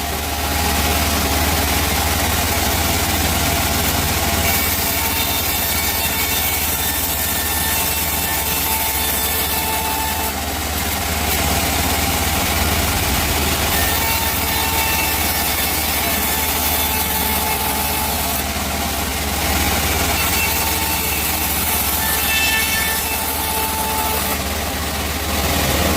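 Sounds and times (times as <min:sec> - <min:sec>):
chainsaw sawing wood: 0:00.0 - 0:25.9.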